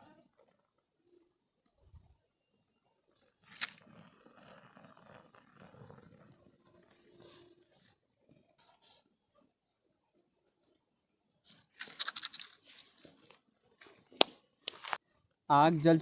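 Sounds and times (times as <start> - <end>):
dry twigs rustling and crunching: 11.8 - 13.4.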